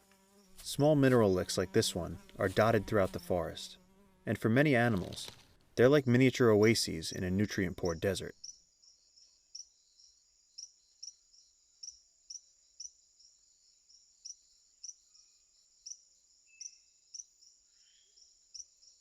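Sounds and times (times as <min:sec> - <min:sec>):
insect chorus drone: 0:08.4 - 0:19.0.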